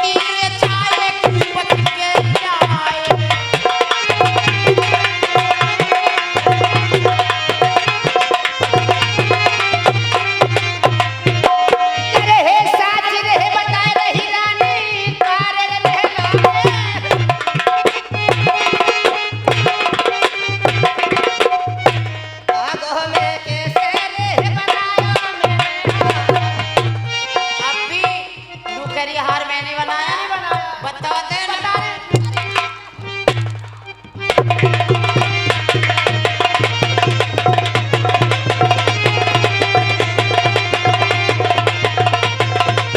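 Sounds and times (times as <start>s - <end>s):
folk melody with bending notes: 0.0s - 42.9s
hand drum beat: 0.6s - 22.1s, 30.9s - 42.9s.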